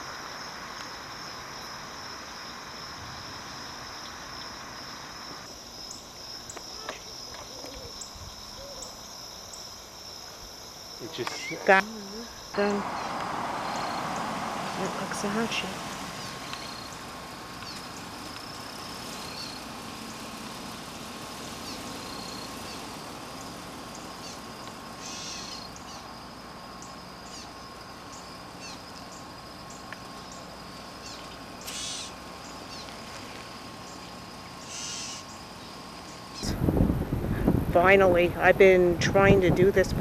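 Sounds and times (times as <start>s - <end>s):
high insect drone: 0.0s - 40.0s
bird chirps: 16.2s - 17.0s
brief hissing bursts: 31.6s - 32.1s.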